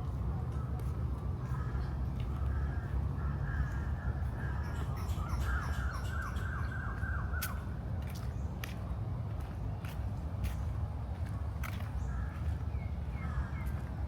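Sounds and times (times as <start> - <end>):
steady low rumble: 0.0 - 5.0
bird calling: 3.2 - 7.6.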